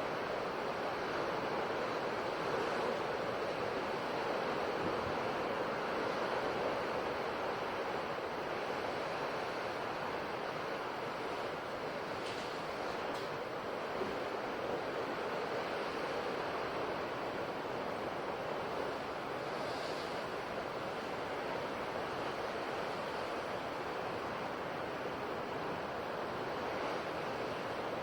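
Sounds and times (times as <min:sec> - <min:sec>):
ocean waves on shore: 0:00.0 - 0:28.0.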